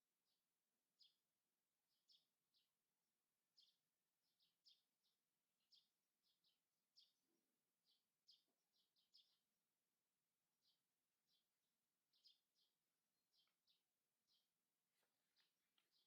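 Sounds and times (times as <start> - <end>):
faint high-pitched bird chirps: 1.0 - 1.2, 1.9 - 2.8, 3.5 - 9.5, 10.6 - 14.5.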